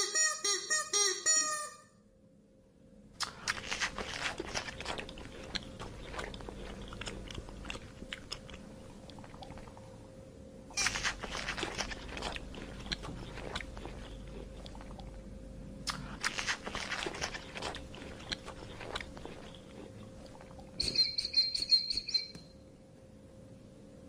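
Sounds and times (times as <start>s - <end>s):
giraffe crunching leaves: 3.4s - 8.1s, 10.8s - 14.5s, 16.2s - 19.9s
short high chirping trill: 20.8s - 22.4s.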